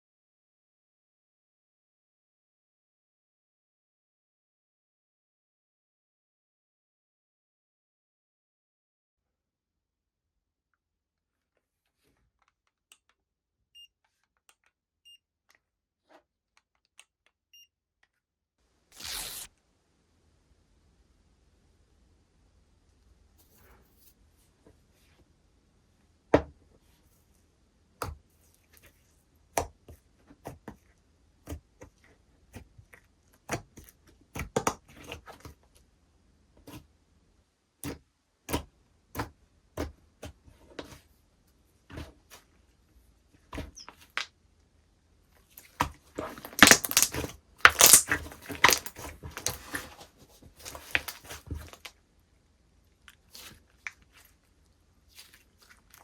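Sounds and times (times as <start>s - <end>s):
slime crackling: 46.2s - 49.8s
slime squeezed with wet pops: 46.3s - 49.6s.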